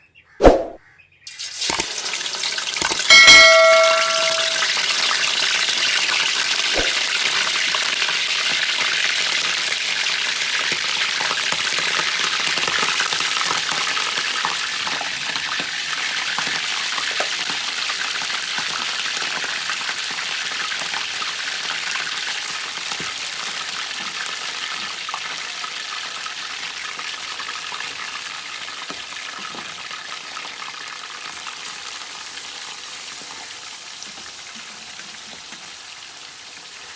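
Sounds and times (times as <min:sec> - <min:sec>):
hot oil sizzling: 0:01.3 - 0:36.9
metallic ring: 0:02.8 - 0:04.8.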